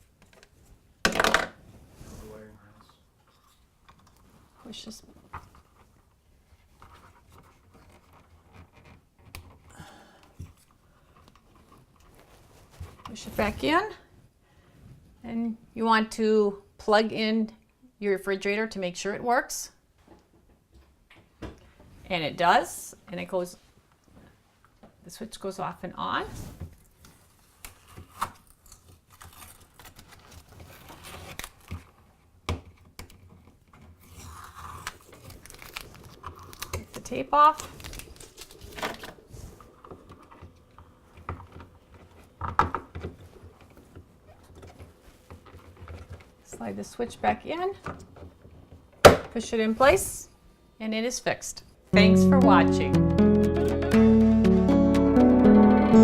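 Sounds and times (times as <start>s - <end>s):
crinkling and rustling: 0.0s - 9.7s, 10.3s - 14.2s, 26.5s - 49.1s.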